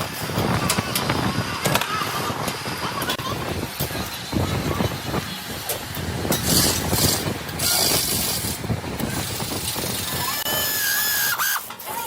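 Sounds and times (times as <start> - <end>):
mechanical clatter: 0.0 - 12.0.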